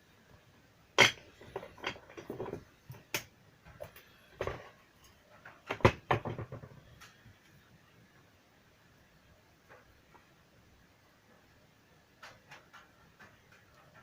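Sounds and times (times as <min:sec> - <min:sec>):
hard objects clicking and knocking: 0:01.0 - 0:07.2, 0:12.0 - 0:14.0.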